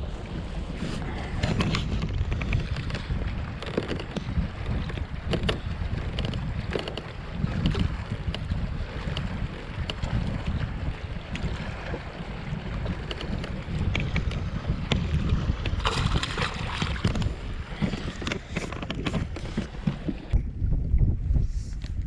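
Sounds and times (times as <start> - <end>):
wind buffeting microphone: 0.0 - 22.0
small clicks and knocks: 3.6 - 4.3, 4.9 - 8.4.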